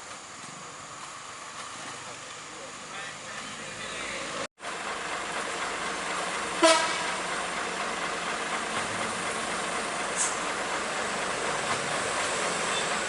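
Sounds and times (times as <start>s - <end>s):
roadside traffic: 0.0s - 13.0s
vehicle horn toot: 6.6s - 7.1s.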